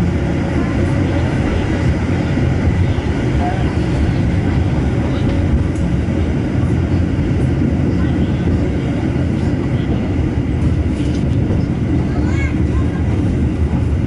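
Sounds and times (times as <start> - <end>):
train interior rumble: 0.0 - 14.0.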